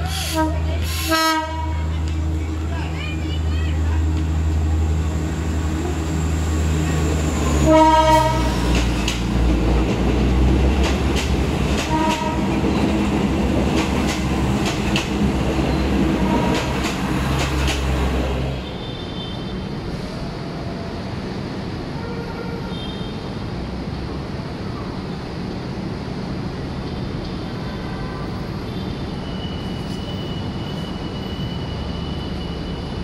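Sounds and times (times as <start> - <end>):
diesel train engine droning: 0.0 - 19.0
train horn blast: 0.1 - 1.9, 7.6 - 8.8, 11.8 - 12.6, 16.2 - 16.8, 22.0 - 23.1
wheels clicking over rail joints: 8.6 - 15.3.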